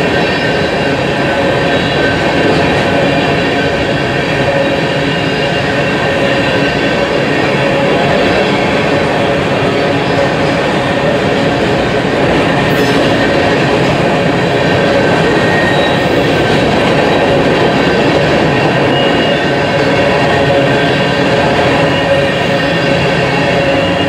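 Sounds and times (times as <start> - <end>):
freight train wheels rumbling on rail: 0.0 - 24.0
faint high wheel squeals: 12.5 - 24.0.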